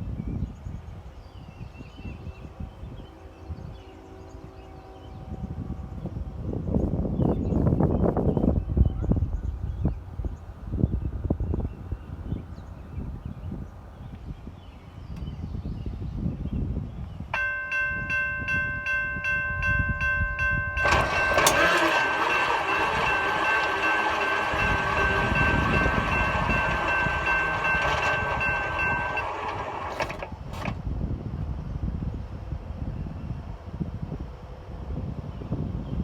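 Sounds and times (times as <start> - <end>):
railroad crossing bell ringing: 17.4 - 30.7
train passing: 17.4 - 30.8
sharp metal clanks: 20.8 - 30.8.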